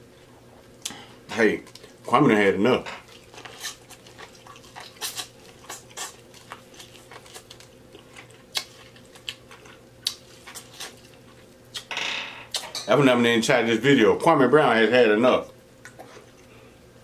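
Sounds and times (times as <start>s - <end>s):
wet chewing and lip smacking: 3.0s - 11.9s, 15.8s - 16.5s.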